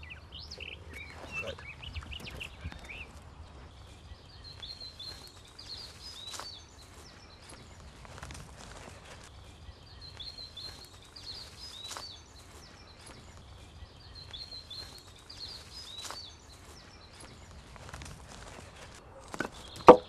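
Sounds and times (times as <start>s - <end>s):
faint outdoor background noise: 0.0s - 20.0s
small songbird chirping: 0.0s - 20.0s.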